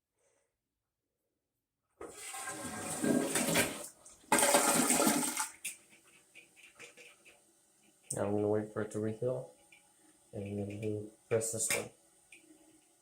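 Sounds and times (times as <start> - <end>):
toilet flushing: 2.0 - 5.8.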